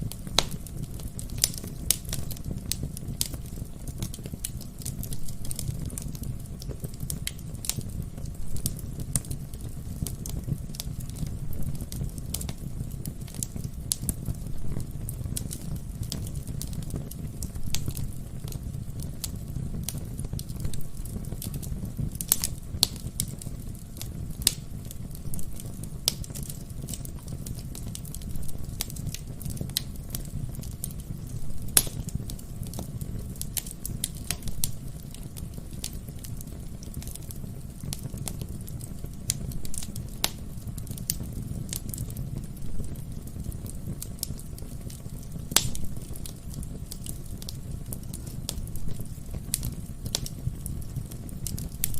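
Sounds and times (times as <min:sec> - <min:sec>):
low rumble of flames: 0:00.0 - 0:51.9
wood fire crackling and popping: 0:00.0 - 0:51.9.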